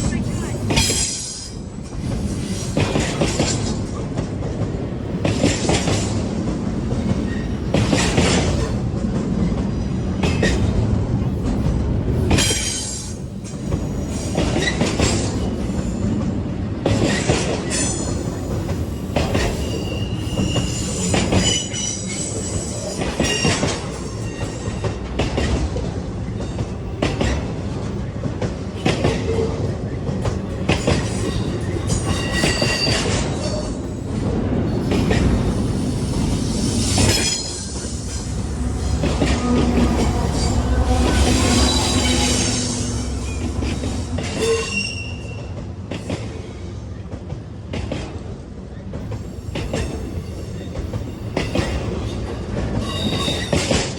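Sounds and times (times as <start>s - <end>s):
low train rumble: 0.0s - 53.9s
train wheels knocking over rail joints: 0.7s - 9.3s
high-pitched wheel squeals: 19.0s - 23.6s, 36.7s - 45.5s.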